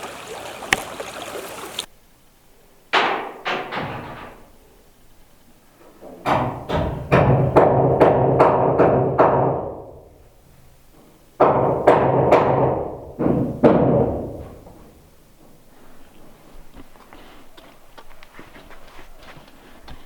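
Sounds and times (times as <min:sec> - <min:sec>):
loud hollow knocks: 0:06.2 - 0:10.1, 0:11.0 - 0:14.8.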